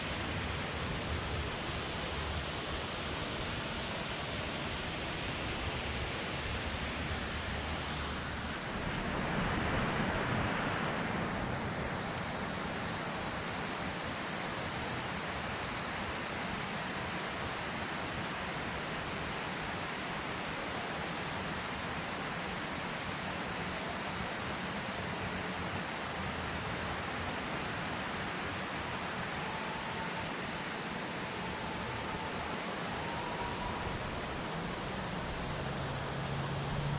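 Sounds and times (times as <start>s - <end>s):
river rushing: 0.9s - 36.9s
water falling from dam: 9.5s - 36.9s.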